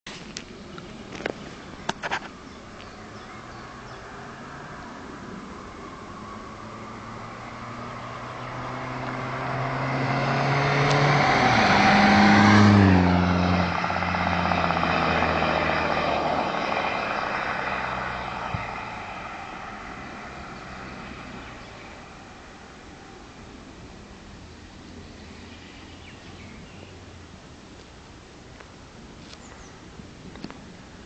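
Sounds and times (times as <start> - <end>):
diesel car accelerating past: 2.9 - 23.4.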